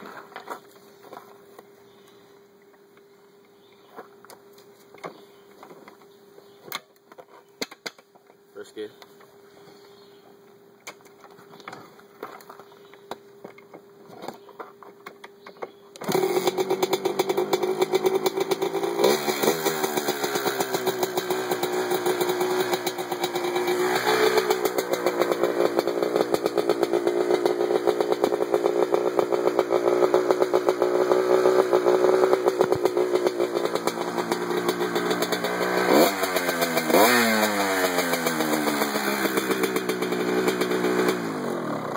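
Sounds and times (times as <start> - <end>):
dirt bike engine revving: 16.0 - 41.9.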